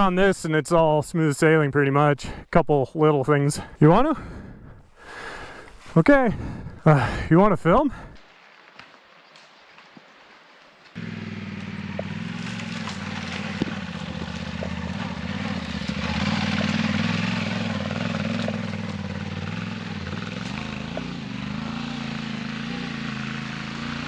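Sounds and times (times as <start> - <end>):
motorcycle engine running: 11.0 - 24.0.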